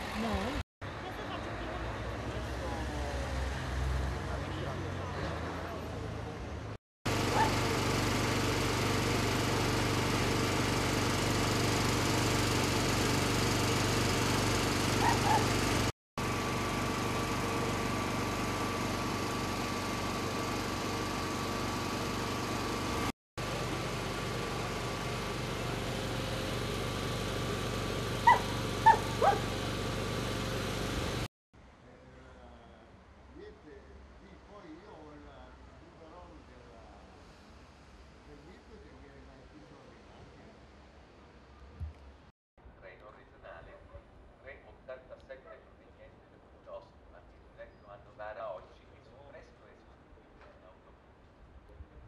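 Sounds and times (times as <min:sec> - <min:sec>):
engine hum: 0:00.0 - 0:31.3
dog barking: 0:07.3 - 0:07.6, 0:15.0 - 0:15.5, 0:28.2 - 0:29.5.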